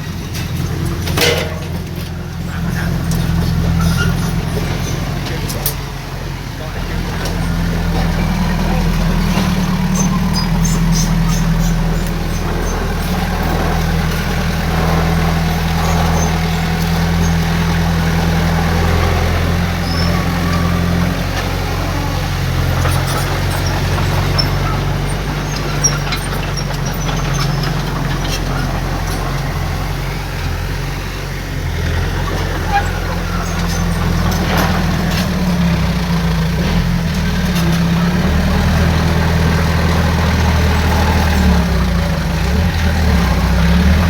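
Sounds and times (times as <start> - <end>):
heavy diesel engine running: 0.0 - 44.0
faint clanks: 0.2 - 6.0.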